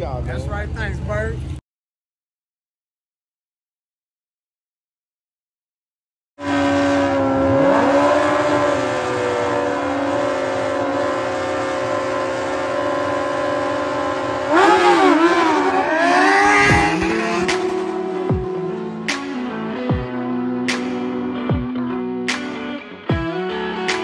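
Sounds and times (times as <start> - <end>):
motorcycle engine revving: 6.4 - 20.9.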